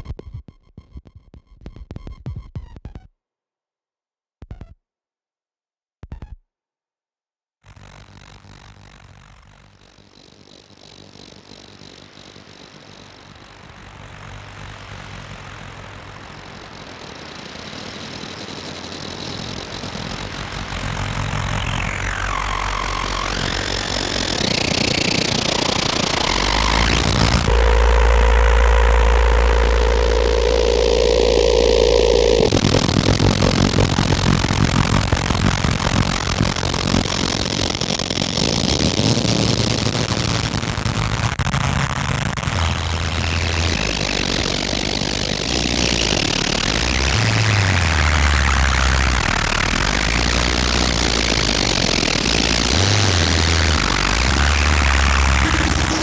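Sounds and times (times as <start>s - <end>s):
loud low buzzing drone: 20.4s - 37.8s, 42.3s - 56.0s
electronic noise wash: 20.8s - 37.7s, 42.4s - 56.0s
pitch sweep: 21.7s - 37.3s, 42.5s - 56.0s.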